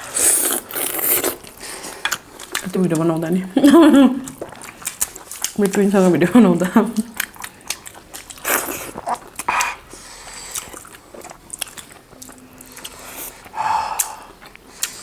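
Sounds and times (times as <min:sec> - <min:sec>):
biting and chewing: 0:04.3 - 0:05.9.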